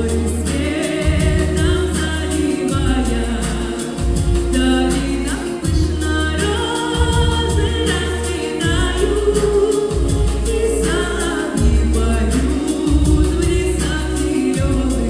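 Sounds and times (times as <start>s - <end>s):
band with heavy bass beat: 0.0s - 15.0s
woman singing pop song: 0.0s - 15.0s.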